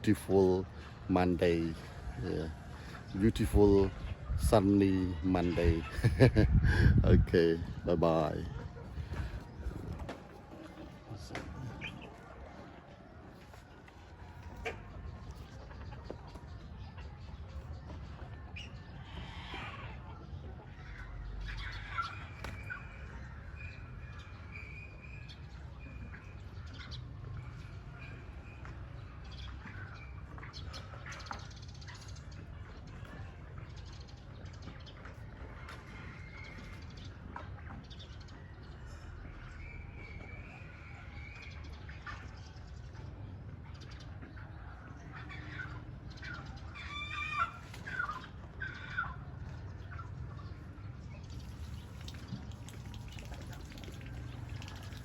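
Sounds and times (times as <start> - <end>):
birds chirping: 0.0 - 55.0
chickens calling: 0.0 - 55.0
chicken squawks: 18.6 - 23.3, 45.0 - 49.4.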